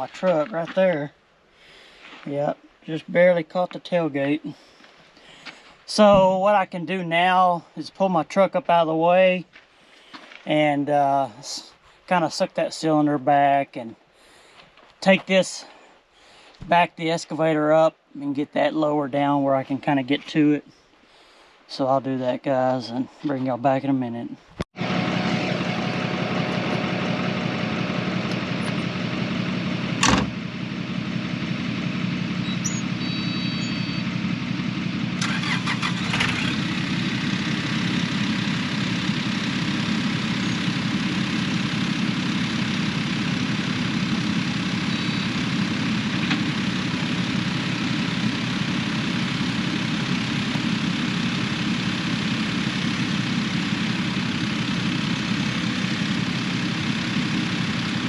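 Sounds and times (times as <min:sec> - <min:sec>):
vehicle engine running: 0:24.8 - 0:58.0
sharp knock: 0:30.0 - 0:30.3.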